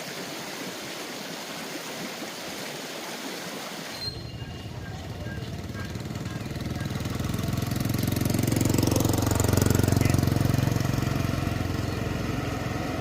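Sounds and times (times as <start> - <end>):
small engine passing by: 4.1 - 13.0.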